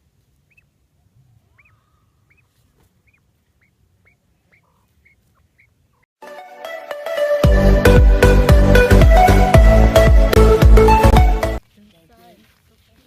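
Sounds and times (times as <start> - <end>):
bird chirping: 0.4 - 6.1.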